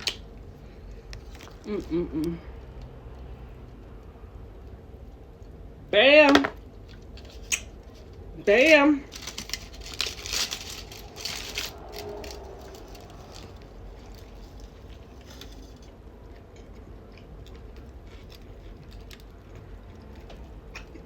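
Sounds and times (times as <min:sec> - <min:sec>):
person chewing food: 0:11.8 - 0:21.0.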